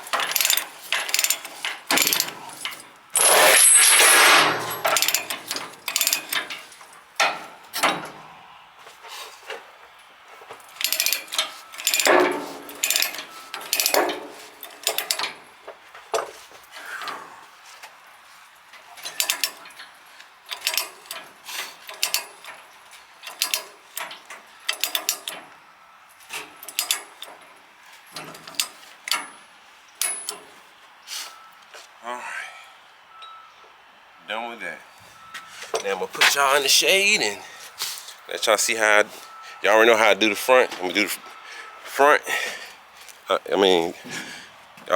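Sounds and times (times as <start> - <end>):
metal chains clinking and rattling: 0.2 - 6.6, 10.6 - 14.0.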